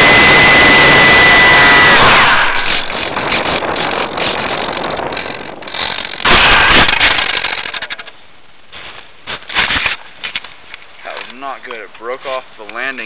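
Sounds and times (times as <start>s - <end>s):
airframe rushing and rattling: 2.1s - 8.2s
landing scraping and knocking: 2.4s - 8.2s.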